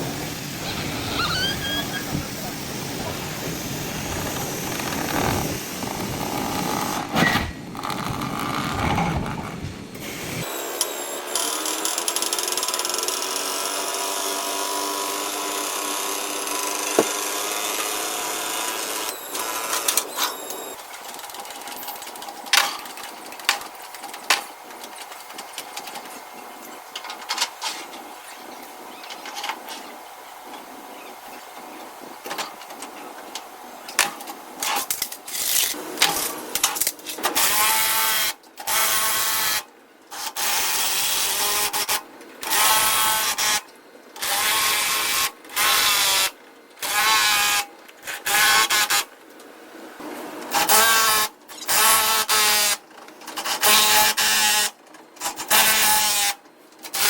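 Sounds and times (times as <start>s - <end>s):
power tool whining: 0.0s - 13.4s, 15.0s - 20.8s.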